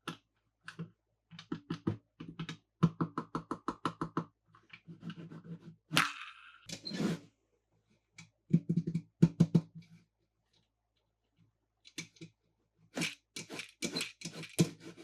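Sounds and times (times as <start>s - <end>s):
toy cars clicking and tapping: 13.0s - 14.9s.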